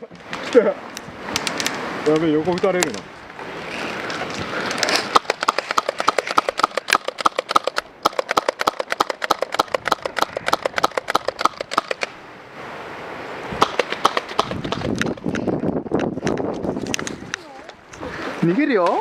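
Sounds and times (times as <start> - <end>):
rustling movement: 0.2 - 7.9
airsoft guns firing: 5.0 - 12.1, 13.6 - 15.2.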